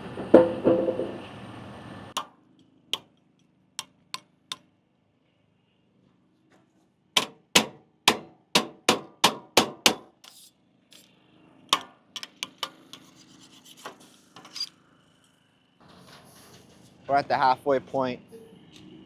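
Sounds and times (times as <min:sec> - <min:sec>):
hand tools knocking on concrete: 0:07.2 - 0:10.3, 0:11.8 - 0:12.8
tools scraping concrete: 0:09.8 - 0:11.1, 0:12.2 - 0:14.7.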